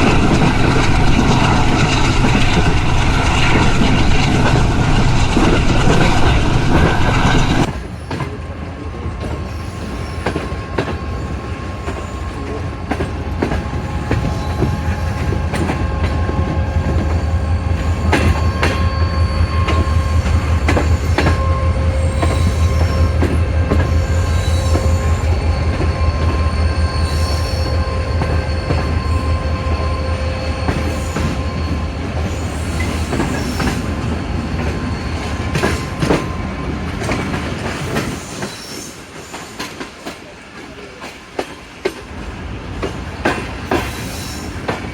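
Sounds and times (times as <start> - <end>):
wheels squealing on rails: 0.0 - 41.2, 42.8 - 44.9
train wheels clicking over joints: 0.0 - 44.9.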